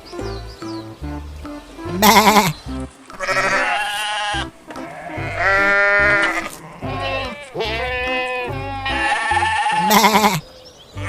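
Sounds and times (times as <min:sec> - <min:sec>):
sheep bleating: 0:01.9 - 0:10.4.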